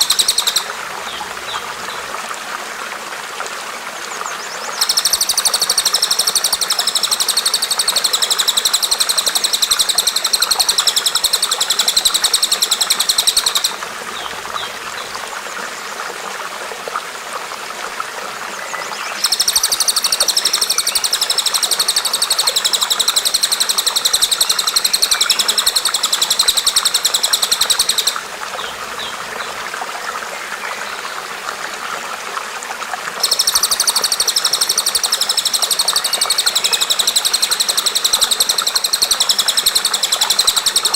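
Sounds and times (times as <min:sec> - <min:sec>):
bird high-pitched trill: 0:00.0 - 0:01.6, 0:04.8 - 0:13.8, 0:19.2 - 0:28.2, 0:33.2 - 0:40.9
running water: 0:00.0 - 0:40.9.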